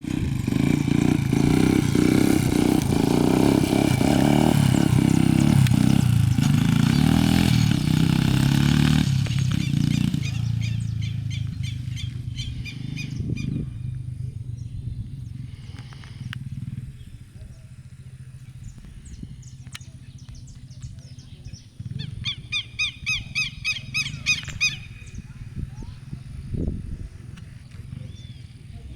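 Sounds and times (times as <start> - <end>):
motorcycle engine revving: 0.0 - 28.9
bird calling sharp notes: 9.2 - 14.0, 19.4 - 25.2.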